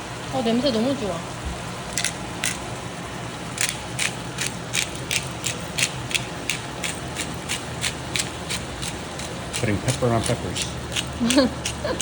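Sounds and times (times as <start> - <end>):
steady low hum: 0.0 - 12.0
pepper grinder ratcheting clicks: 1.9 - 2.6, 3.6 - 12.0.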